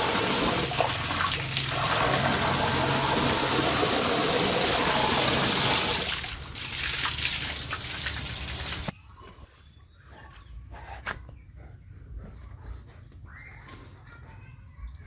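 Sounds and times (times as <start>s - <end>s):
running water rushing: 0.0s - 8.9s.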